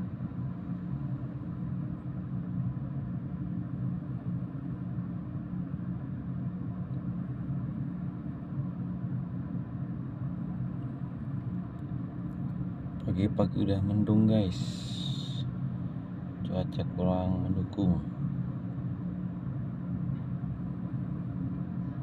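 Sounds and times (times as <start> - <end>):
engine droning: 10.6 - 22.0.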